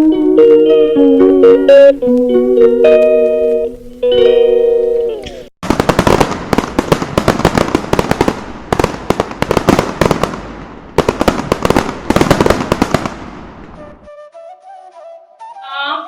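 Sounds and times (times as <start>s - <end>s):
firecrackers banging: 5.6s - 14.1s.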